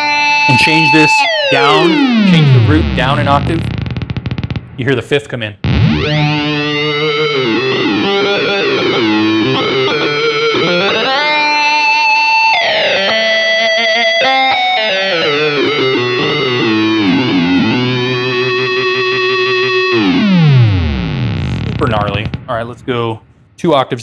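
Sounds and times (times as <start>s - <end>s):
synth-like electric guitar: 0.0s - 4.7s, 5.6s - 22.9s.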